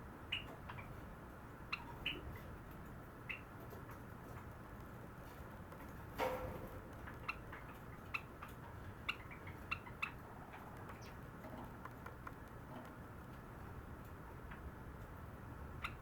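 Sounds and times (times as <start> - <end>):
sparrow singing: 7.0 - 11.3.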